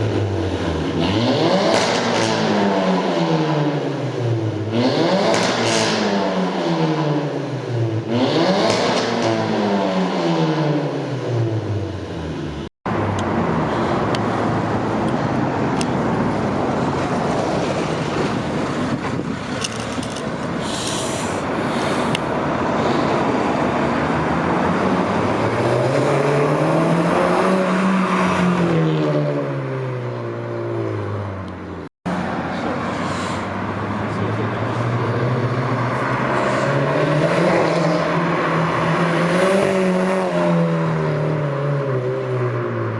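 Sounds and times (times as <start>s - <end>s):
turbocharged car engine revving: 0.0s - 11.8s, 33.6s - 42.2s
rushing engine and exhaust noise: 0.0s - 42.9s.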